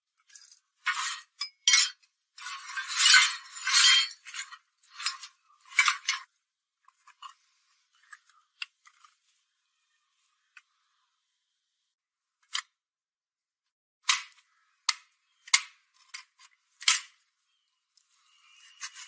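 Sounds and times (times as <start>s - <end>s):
small metal parts clinking: 0.2s - 6.3s, 18.0s - 19.0s.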